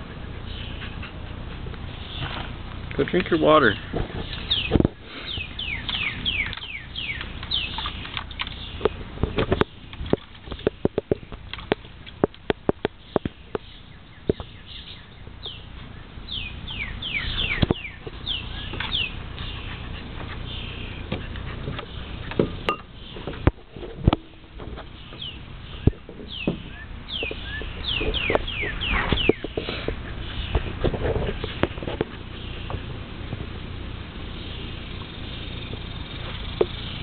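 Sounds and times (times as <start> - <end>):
birds chirping: 0.0 - 37.0
puppy splashing in water bowl: 5.4 - 13.3.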